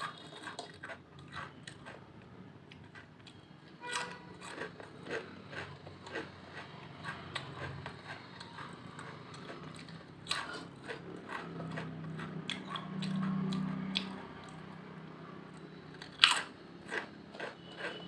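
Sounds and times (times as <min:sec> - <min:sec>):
potato chips crunching: 0:00.0 - 0:14.6, 0:15.6 - 0:18.0.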